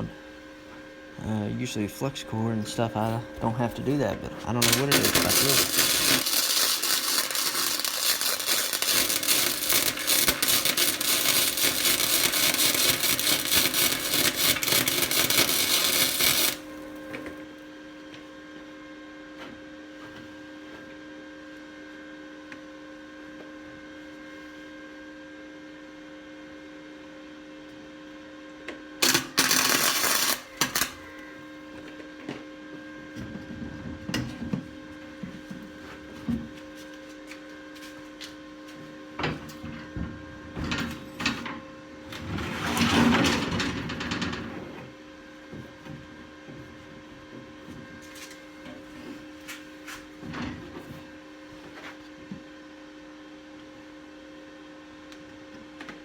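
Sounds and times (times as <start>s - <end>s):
welder humming: 0.0s - 17.4s, 29.0s - 31.6s
welding arc crackling and sizzling: 2.9s - 17.1s, 29.0s - 31.0s.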